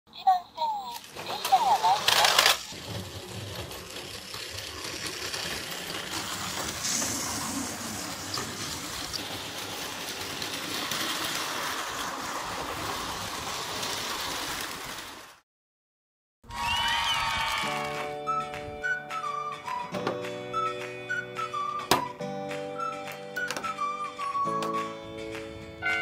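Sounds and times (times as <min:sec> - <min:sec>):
toy train motors whirring: 0:00.9 - 0:15.4
wheels over track joints: 0:00.9 - 0:15.4.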